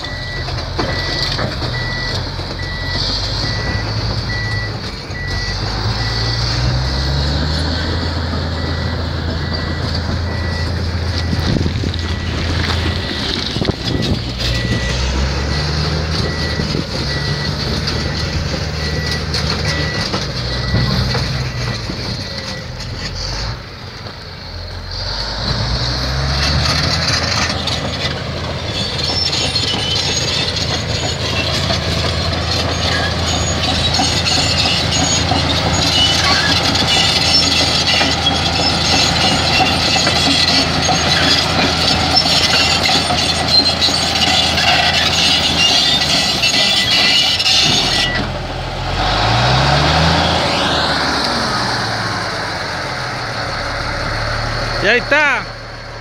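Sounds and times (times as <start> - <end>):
reverse alarm beeping: 0.0 - 7.1, 7.7 - 22.9, 44.3 - 48.3
steel tracks clanking and squealing: 0.0 - 51.4
diesel engine running: 0.0 - 56.0.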